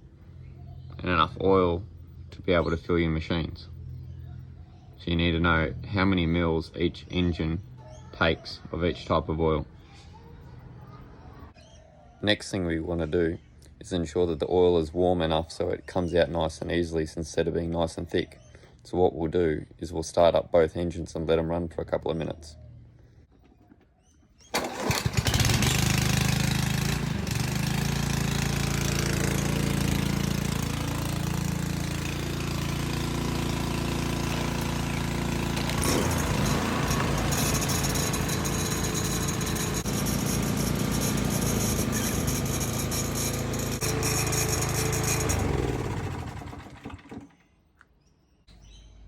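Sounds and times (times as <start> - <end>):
lawn mower engine running: 24.5 - 47.4.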